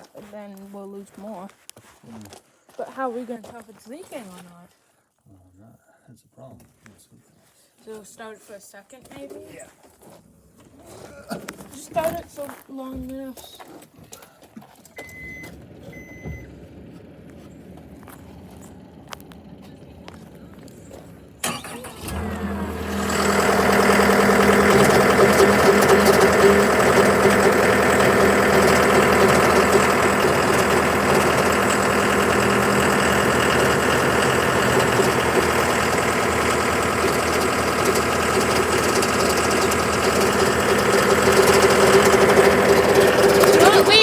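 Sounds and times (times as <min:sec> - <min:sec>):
diesel engine cranking and starting: 0:14.8 - 0:44.0.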